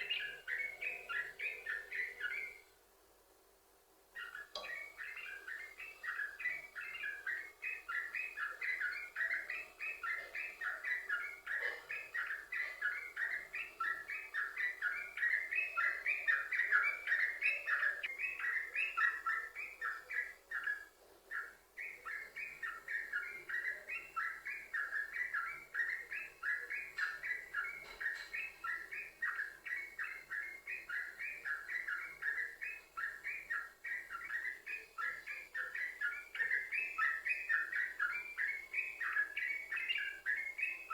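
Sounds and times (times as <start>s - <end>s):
bird singing rapid repeated notes: 4.2s - 40.9s.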